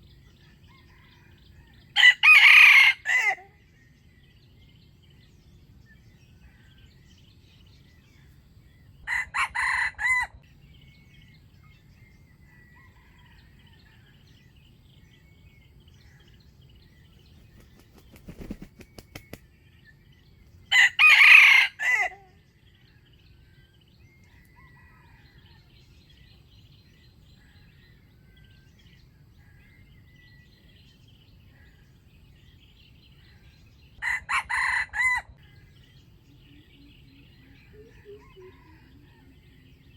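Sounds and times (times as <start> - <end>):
faint small birds chirping: 0.0 - 2.2, 3.0 - 21.2, 35.3 - 39.9
rooster crowing: 0.6 - 3.5, 9.1 - 10.4, 20.7 - 22.2, 34.0 - 35.5, 37.6 - 39.9.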